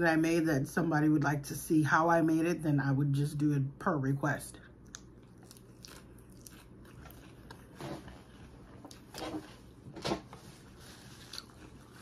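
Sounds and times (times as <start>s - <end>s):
low room hum: 0.0s - 12.0s
person chewing: 4.8s - 9.9s, 10.6s - 12.0s.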